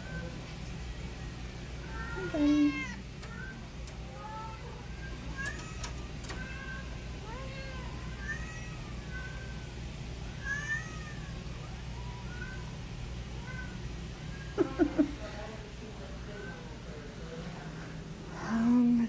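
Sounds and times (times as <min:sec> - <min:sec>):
steady low hum: 0:00.0 - 0:19.0
cats meowing: 0:01.2 - 0:09.7, 0:10.4 - 0:15.0
sharp clicks: 0:03.2 - 0:04.0, 0:05.4 - 0:06.5.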